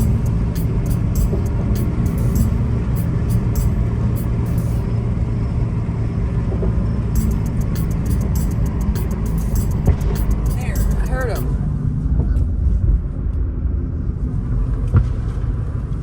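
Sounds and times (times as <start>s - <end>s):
rapid high-pitched ticking: 0.0s - 4.9s, 7.2s - 11.5s.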